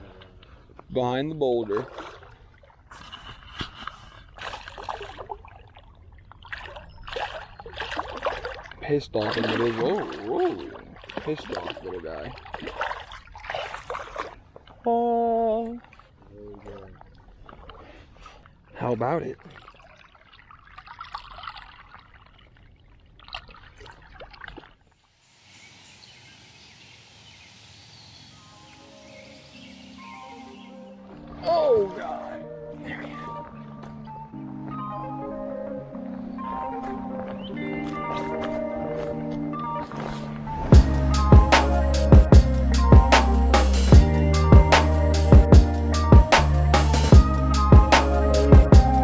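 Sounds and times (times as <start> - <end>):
creek water splashing and trickling: 0.0 - 49.0
running creek water hiss: 25.1 - 30.7.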